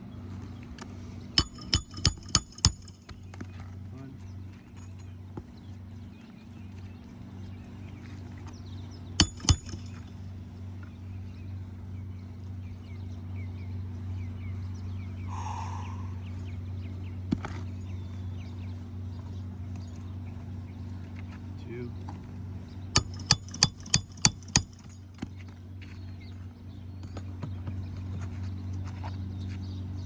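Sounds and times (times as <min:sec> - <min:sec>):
steady low hum: 0:00.0 - 0:30.0
hammer driving nails: 0:01.4 - 0:03.2, 0:09.2 - 0:10.1, 0:23.0 - 0:25.0.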